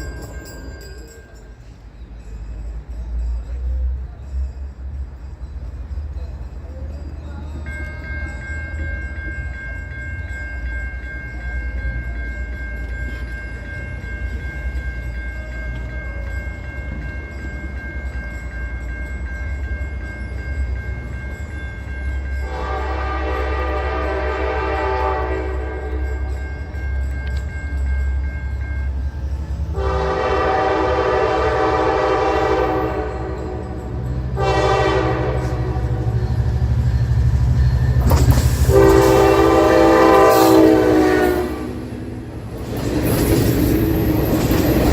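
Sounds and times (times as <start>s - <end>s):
diesel locomotive rumbling: 0.0s - 44.9s
locomotive horn blasts: 22.4s - 26.0s, 29.8s - 36.2s, 38.6s - 41.9s.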